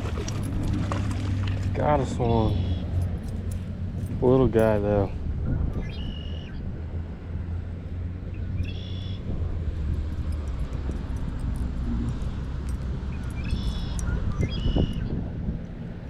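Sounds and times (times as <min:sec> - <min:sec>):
steady low rumble: 0:00.0 - 0:16.0
short high bird calls: 0:13.3 - 0:15.1.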